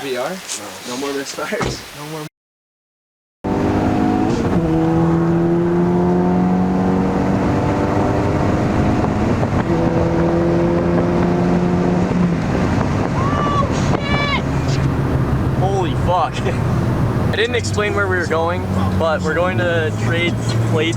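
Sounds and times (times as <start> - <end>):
car engine accelerating: 3.4 - 20.9.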